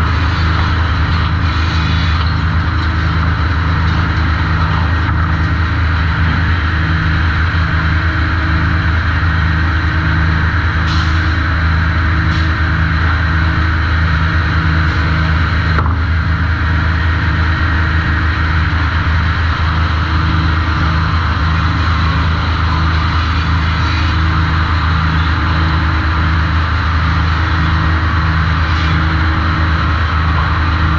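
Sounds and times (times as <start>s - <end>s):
sawmill machinery pulsing drone: 0.0s - 30.9s.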